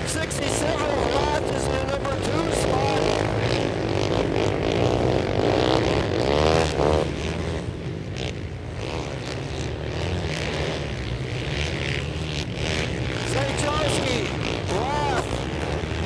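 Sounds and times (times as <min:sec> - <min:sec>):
motorcycle accelerating past: 0:00.0 - 0:16.0
racing motorcycles engine drone: 0:00.0 - 0:16.0.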